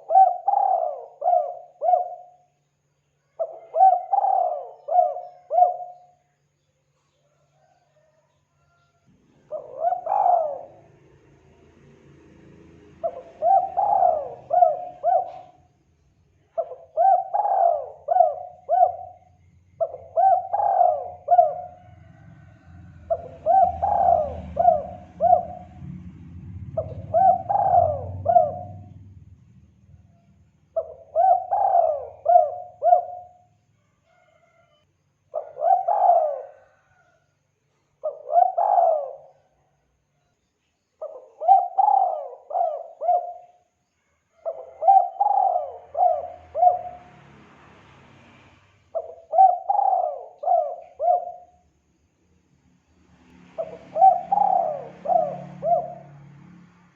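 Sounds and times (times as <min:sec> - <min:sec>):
dove cooing: 0:00.0 - 0:02.6, 0:03.3 - 0:06.3, 0:07.3 - 0:08.7, 0:09.3 - 0:11.2, 0:12.9 - 0:15.7, 0:16.5 - 0:26.0, 0:26.7 - 0:29.0, 0:30.8 - 0:33.5, 0:35.3 - 0:37.2, 0:38.0 - 0:39.6, 0:41.0 - 0:43.7, 0:44.3 - 0:47.2, 0:48.9 - 0:51.6, 0:53.6 - 0:56.3.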